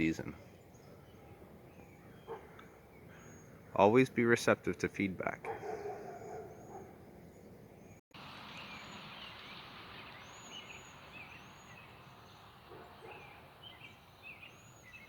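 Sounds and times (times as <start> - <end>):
birds chirping and whistling: 0.4 - 3.8, 5.6 - 15.0
outdoor background hiss: 6.9 - 15.0.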